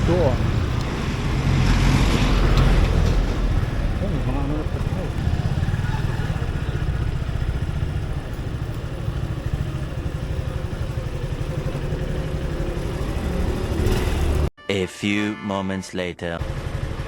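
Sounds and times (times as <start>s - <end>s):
motorcycle engine running: 2.4s - 14.5s, 16.4s - 17.0s.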